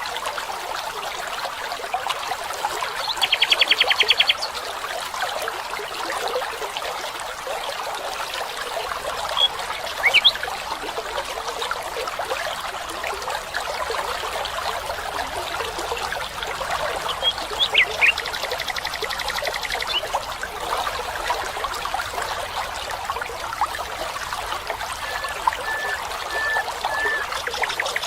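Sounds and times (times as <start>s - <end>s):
stream trickling: 0.0s - 28.0s
rising bird chirps: 25.0s - 28.0s.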